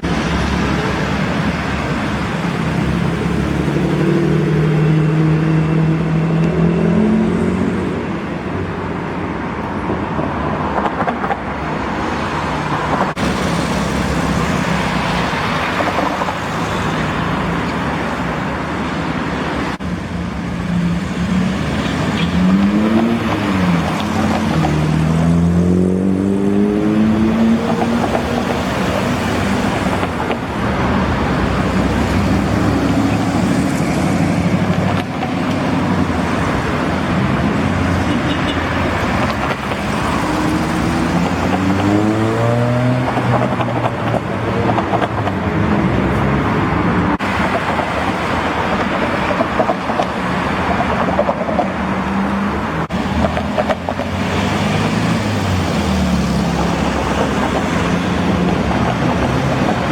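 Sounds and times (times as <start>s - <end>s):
car engines driving past: 10.4s - 59.9s.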